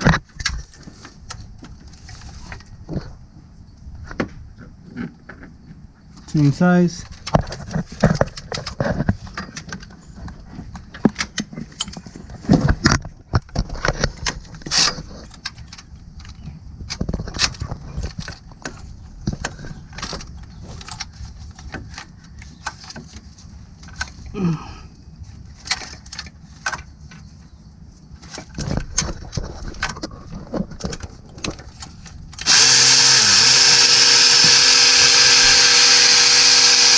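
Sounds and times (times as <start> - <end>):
ratchet clicking: 32.4 - 36.9.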